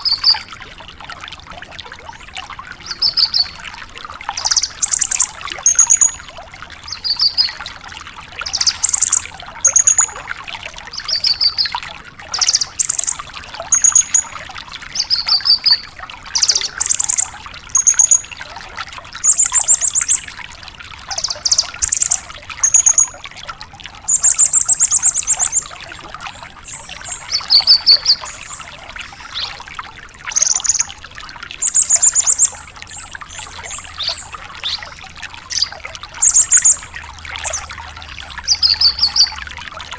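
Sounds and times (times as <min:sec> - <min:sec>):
lark singing trills: 0:16.4 - 0:18.3, 0:26.6 - 0:29.6, 0:31.6 - 0:36.8, 0:37.4 - 0:39.4.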